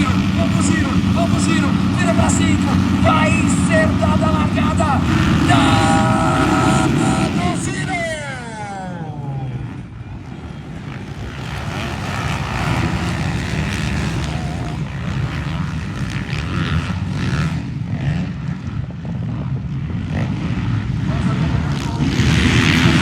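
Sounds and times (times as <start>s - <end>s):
motocross bikes revving: 0.0s - 23.0s.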